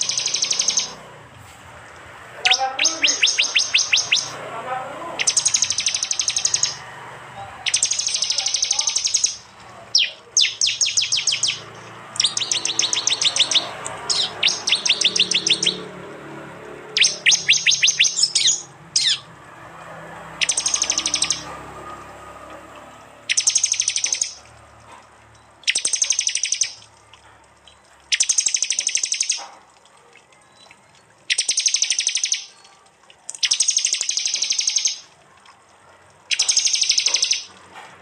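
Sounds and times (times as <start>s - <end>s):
birds calling in rapid bursts: 0.0s - 37.7s.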